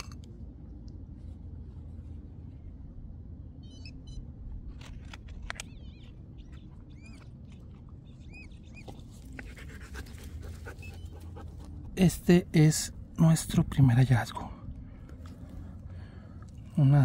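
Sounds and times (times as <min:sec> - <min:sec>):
low rumble: 0:00.0 - 0:16.9
bird chirps: 0:03.6 - 0:04.2, 0:05.6 - 0:09.2, 0:10.7 - 0:11.3.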